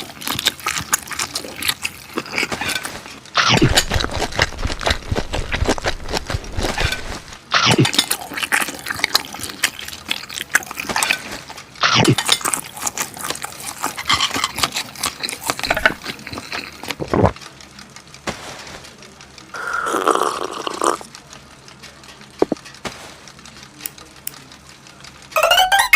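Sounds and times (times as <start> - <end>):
wet chewing and slurping: 0.0 - 17.4, 19.5 - 21.2.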